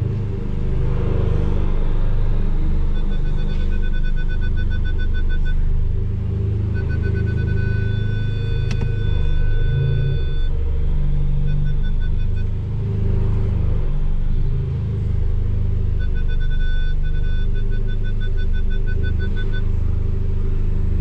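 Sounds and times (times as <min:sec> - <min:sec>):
car engine rumbling low: 0:00.0 - 0:21.0
high electronic tone: 0:02.6 - 0:05.7, 0:06.7 - 0:12.6
short electronic beeps: 0:02.7 - 0:05.7, 0:06.7 - 0:12.6, 0:15.9 - 0:19.9.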